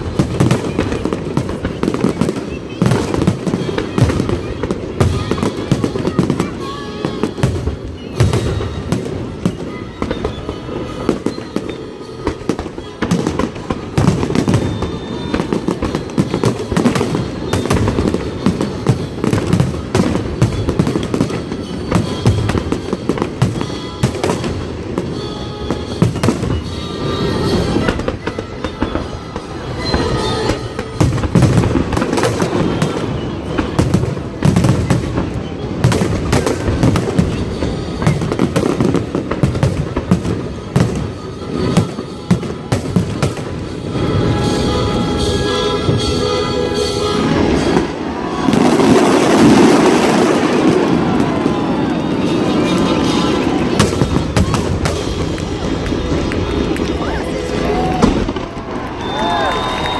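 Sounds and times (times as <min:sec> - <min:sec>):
fireworks bangs and crackles: 0:00.0 - 0:59.9
music playing: 0:37.3 - 0:58.4.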